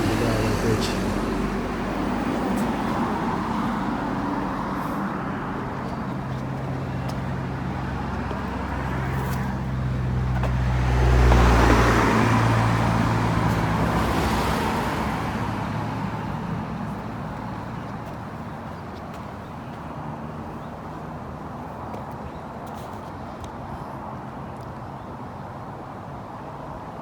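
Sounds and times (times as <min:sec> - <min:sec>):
vehicle passing close: 0:00.0 - 0:18.8
road traffic passing: 0:00.0 - 0:27.0.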